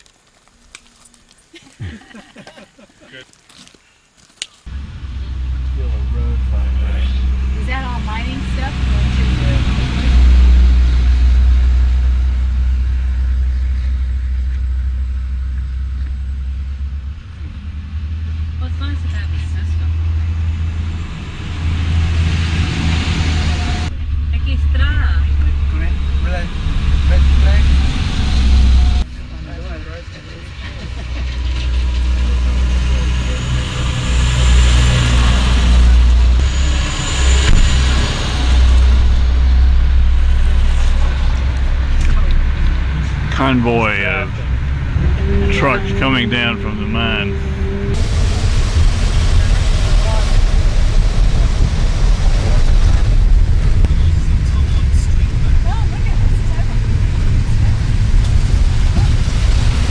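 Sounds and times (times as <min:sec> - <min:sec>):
road noise: 0:00.0 - 0:59.9
motor vehicle rumbling: 0:04.6 - 0:59.9.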